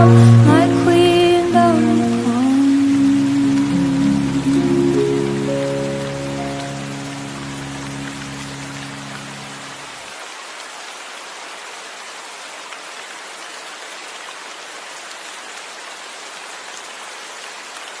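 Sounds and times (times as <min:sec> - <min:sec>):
low music notes: 0:00.0 - 0:09.8
steady rain: 0:00.0 - 0:18.0.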